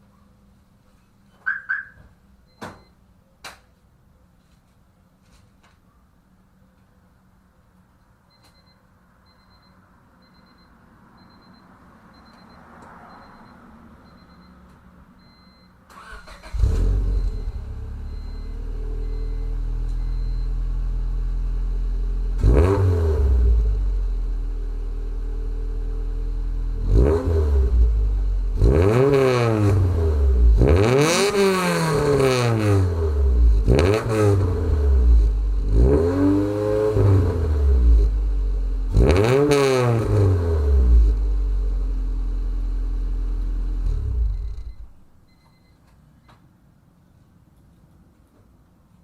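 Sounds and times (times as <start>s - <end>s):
car engine idling and revving: 14.1s - 45.1s.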